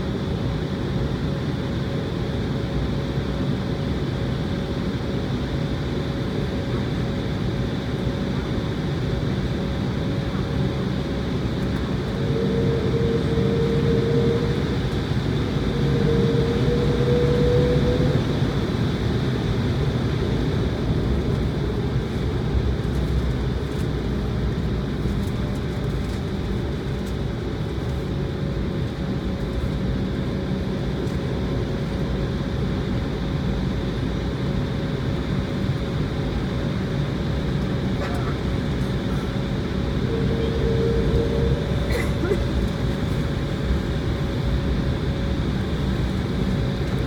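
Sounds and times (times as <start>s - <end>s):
jet engines at low thrust: 0.0s - 47.0s.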